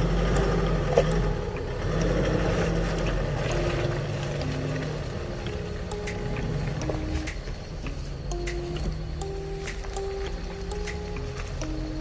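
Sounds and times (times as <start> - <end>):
vehicle engine running low revs: 0.0 - 12.0.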